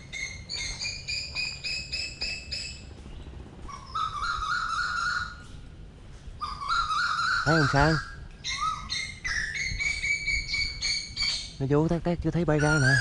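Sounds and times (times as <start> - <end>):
koel calling: 6.4 - 11.6, 12.5 - 13.0.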